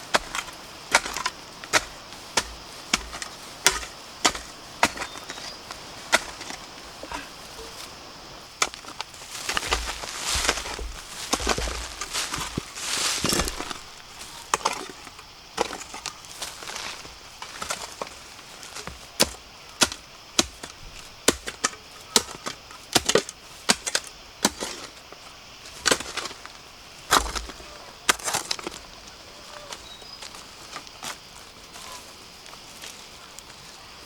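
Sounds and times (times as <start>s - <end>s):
blade chopping bamboo: 0.1s - 6.6s, 18.8s - 20.7s, 21.3s - 24.8s.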